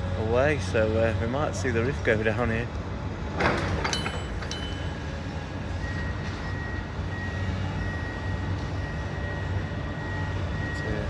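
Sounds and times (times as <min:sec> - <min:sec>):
metallic clanks: 0:03.3 - 0:05.4.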